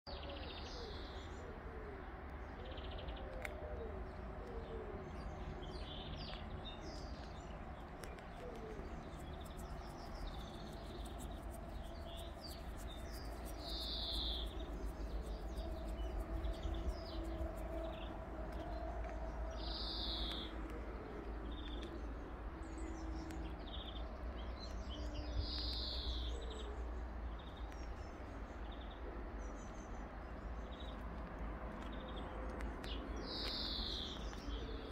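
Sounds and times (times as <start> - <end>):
steady low rumble: 4.0 - 25.2
birds chirping and singing: 4.6 - 20.6.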